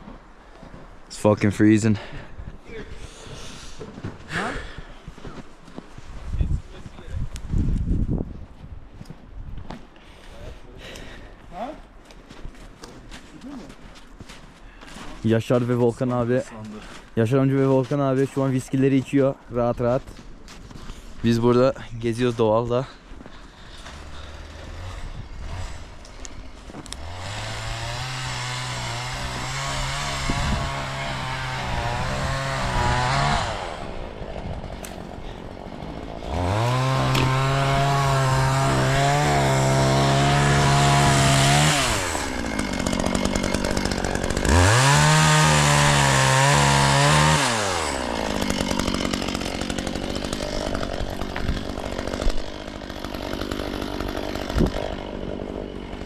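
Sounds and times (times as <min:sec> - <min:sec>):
chainsaw revving and idling: 0:23.5 - 0:56.0.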